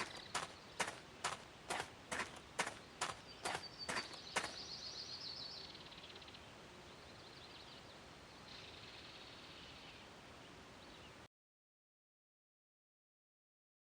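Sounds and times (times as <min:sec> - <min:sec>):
small bird chirping and trilling: 0:00.0 - 0:06.4
faint background noise: 0:00.0 - 0:11.3.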